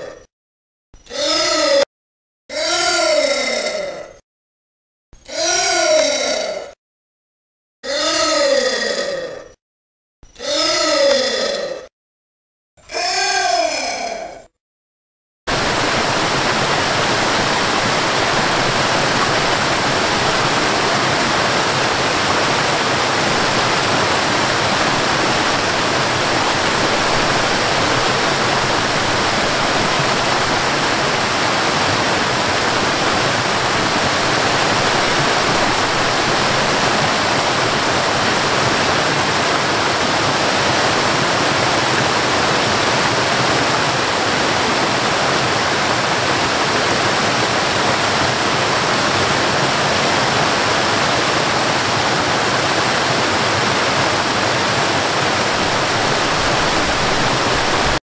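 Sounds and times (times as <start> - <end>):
water cascading down rocks: 15.5 - 58.0.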